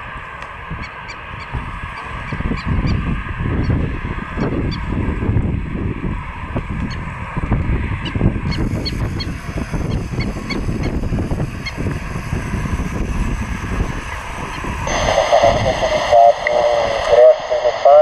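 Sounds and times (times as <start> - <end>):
jet engines roaring at takeoff: 0.0 - 18.0.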